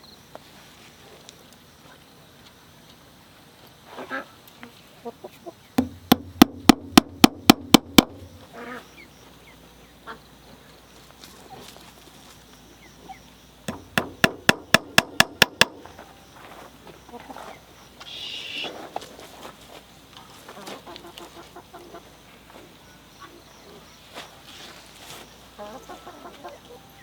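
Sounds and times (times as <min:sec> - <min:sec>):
hammer driving nails into wood: 0:05.8 - 0:08.3, 0:13.7 - 0:15.9.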